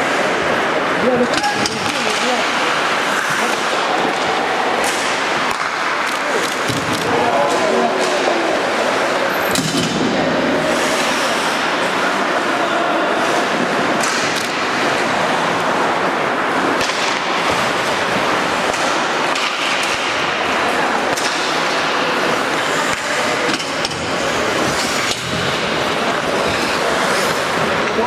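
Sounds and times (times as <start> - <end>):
hockey sticks and puck clacking: 0.0 - 28.0
skates scraping on ice: 0.0 - 28.0.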